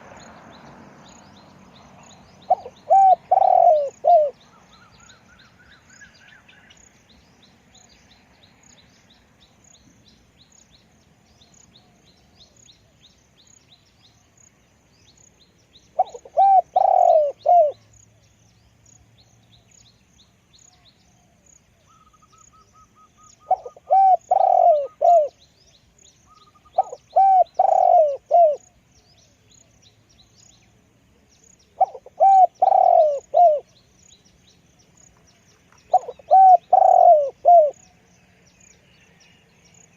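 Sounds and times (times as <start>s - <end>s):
faint chirping of small birds: 0.0s - 39.9s
dove cooing: 2.4s - 5.2s, 16.0s - 17.9s, 21.2s - 25.4s, 26.3s - 28.7s, 31.7s - 33.7s, 35.9s - 37.9s.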